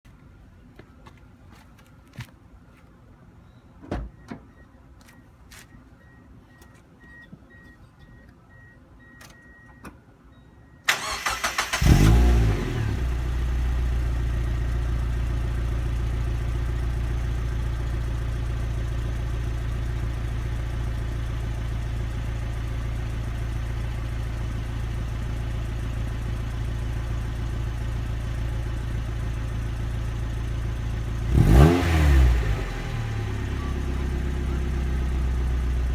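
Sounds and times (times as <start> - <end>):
car engine cranking and idling: 10.9 - 35.9.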